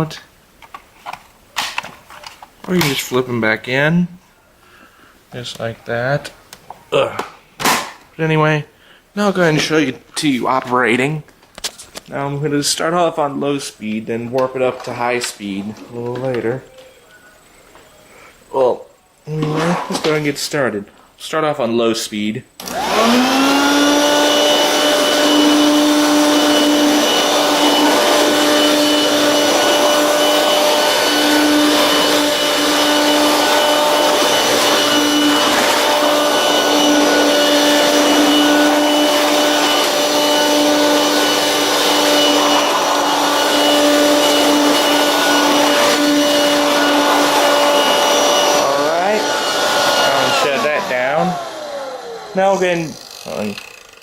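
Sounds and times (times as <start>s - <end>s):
motor winding down: 22.6s - 54.0s
vacuum motor whining: 22.6s - 54.0s.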